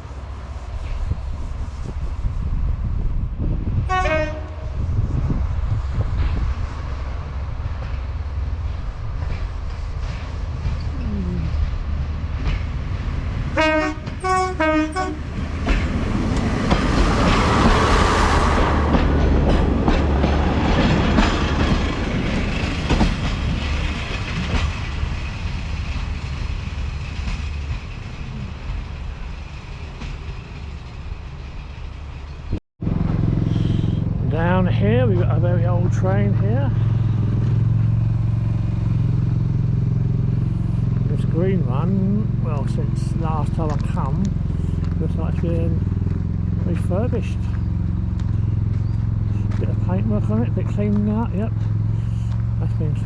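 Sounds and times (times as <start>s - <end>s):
train running past: 0.0s - 53.0s
wind rumble on microphone: 0.0s - 53.0s
train horn toots: 3.9s - 4.8s, 13.6s - 15.3s.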